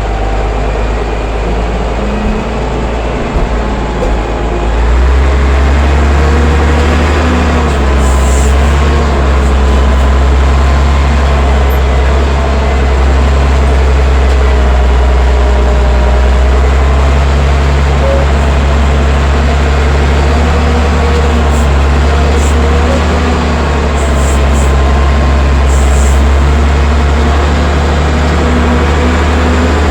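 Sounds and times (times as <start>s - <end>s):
diesel engine droning: 0.0s - 29.9s.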